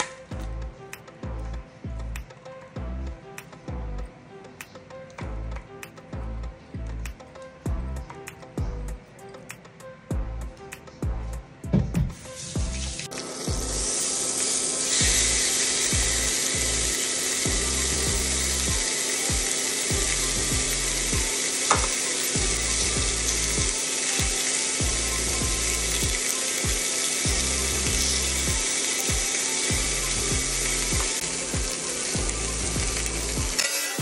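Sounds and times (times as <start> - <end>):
fish sizzling in a grill pan: 12.6 - 34.0.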